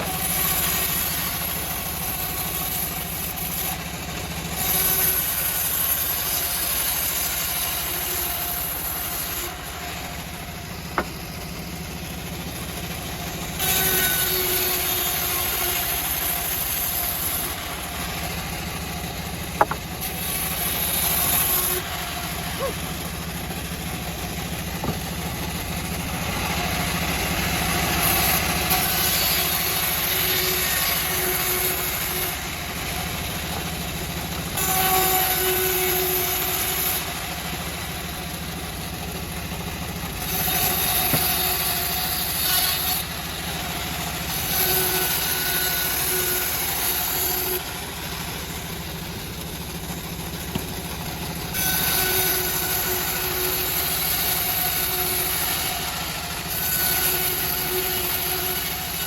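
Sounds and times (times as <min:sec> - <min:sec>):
bandsaw mill droning: 0:00.0 - 0:59.0
saw blade cutting wood: 0:00.0 - 0:59.0.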